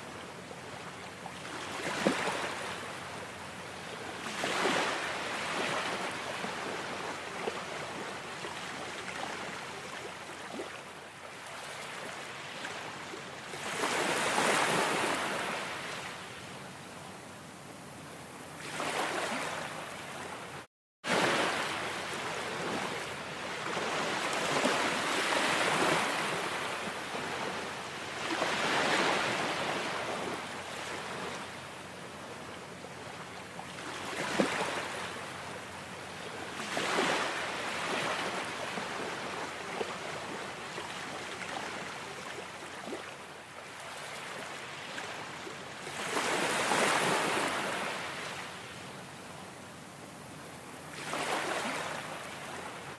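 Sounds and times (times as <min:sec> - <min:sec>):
ocean waves washing onto shore: 0:00.0 - 0:52.9.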